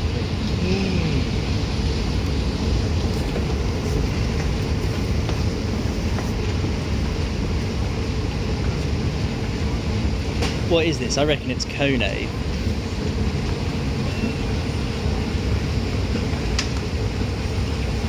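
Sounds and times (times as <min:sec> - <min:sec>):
faint hum: 0:00.0 - 0:04.7
escalator mechanical rumble: 0:00.0 - 0:18.0.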